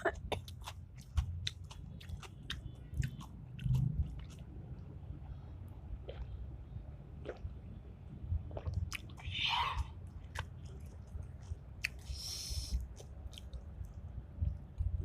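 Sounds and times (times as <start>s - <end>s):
person chewing food: 0.1s - 5.4s, 6.0s - 6.4s, 8.5s - 14.6s.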